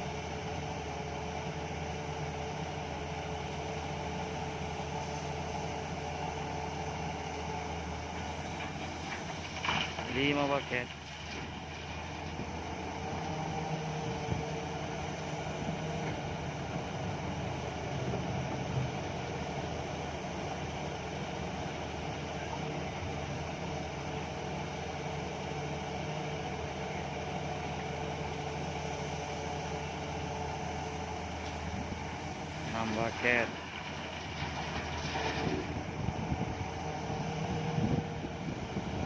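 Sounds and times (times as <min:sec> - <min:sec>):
heavy diesel engines humming: 0:00.0 - 0:39.0.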